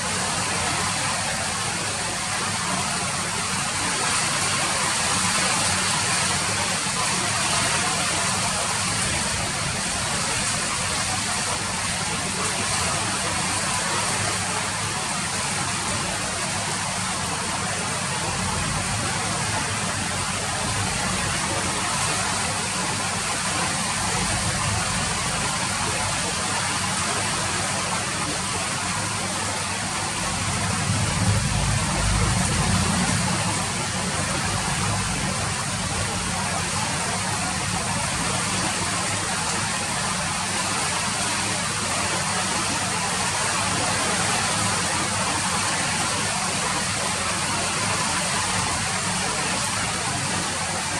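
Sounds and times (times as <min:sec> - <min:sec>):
steady rain falling: 0:00.0 - 0:50.9
low rumble: 0:30.2 - 0:36.4.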